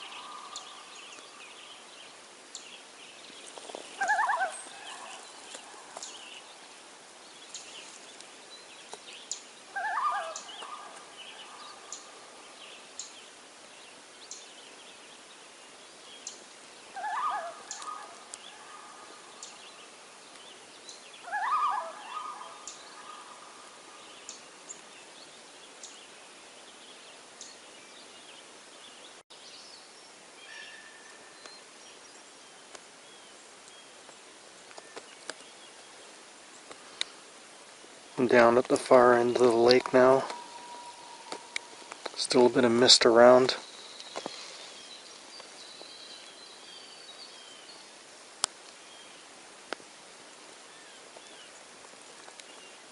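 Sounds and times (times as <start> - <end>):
bird quavering call: 3.9 - 6.0, 9.7 - 12.1, 17.0 - 19.3, 21.2 - 23.6, 39.9 - 42.0
light high ticks: 17.6 - 18.5, 32.7 - 32.9, 33.6 - 35.5, 36.6 - 37.2, 38.6 - 42.4, 48.4 - 48.8, 51.1 - 52.6.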